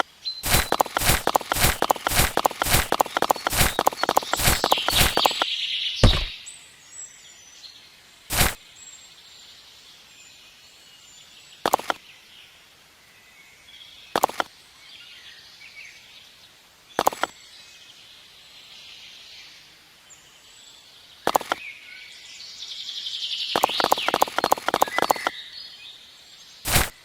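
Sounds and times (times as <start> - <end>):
faint bird chirps: 0.0 - 12.3, 13.0 - 27.0
sharp double knocks: 6.0 - 6.4.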